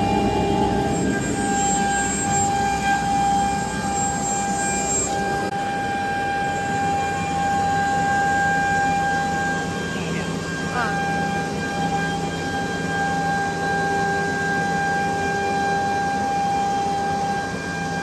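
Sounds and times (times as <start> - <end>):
vacuum pump rush: 0.0 - 5.5
spindle high whine: 0.0 - 18.0.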